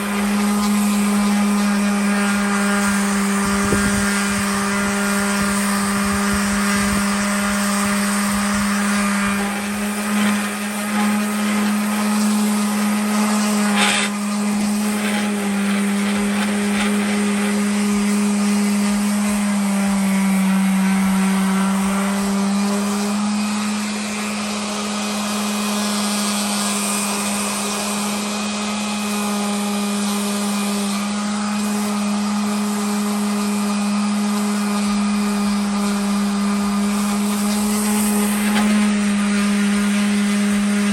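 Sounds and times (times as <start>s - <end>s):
electric sander running: 0.0s - 40.9s.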